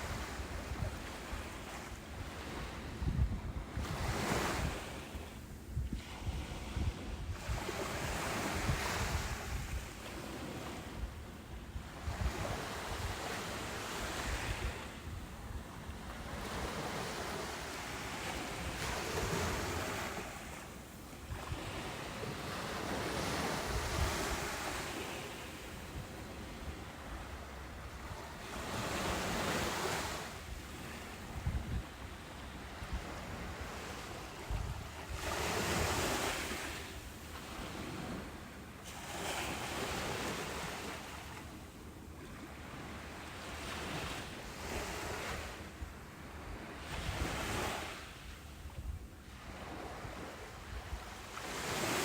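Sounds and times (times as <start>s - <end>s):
waves breaking on beach: 0.0s - 52.0s.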